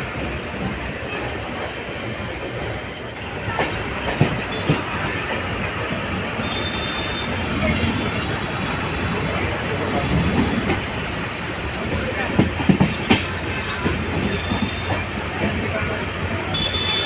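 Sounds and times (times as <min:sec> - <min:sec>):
train wheels rumbling: 0:00.0 - 0:17.0
faint high squeal: 0:14.3 - 0:15.9.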